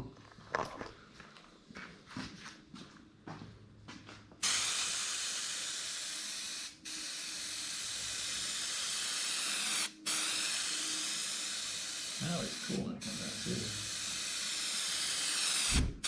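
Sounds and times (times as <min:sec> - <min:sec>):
spray adhesive hissing: 0:04.4 - 0:16.0.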